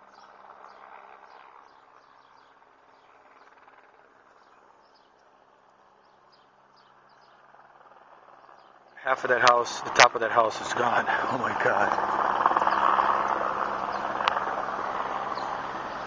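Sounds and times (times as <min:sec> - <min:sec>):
bird chirping: 0:00.0 - 0:07.6, 0:08.3 - 0:09.1, 0:12.5 - 0:14.4, 0:15.2 - 0:16.0.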